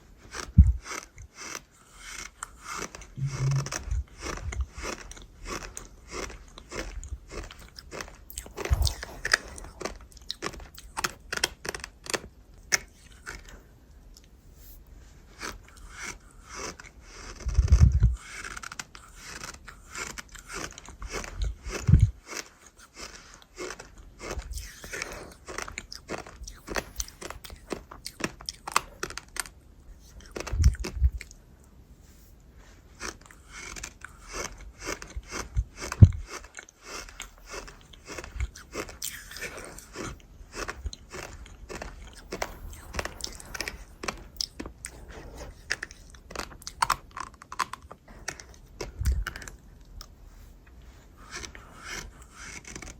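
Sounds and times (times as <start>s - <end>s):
crunchy chewing: 0.0s - 31.4s, 32.0s - 52.9s
heavy bites: 2.8s - 4.9s.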